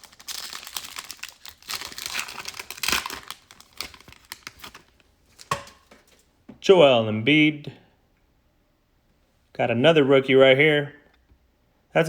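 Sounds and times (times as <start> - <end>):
plastic wrapper tearing and crinkling: 0.0 - 6.0.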